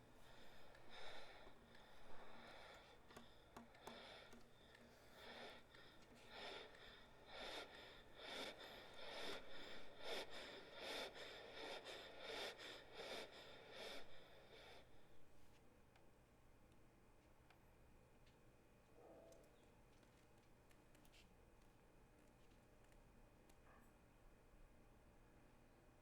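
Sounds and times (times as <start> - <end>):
breathy puffs of air: 0.0 - 15.3.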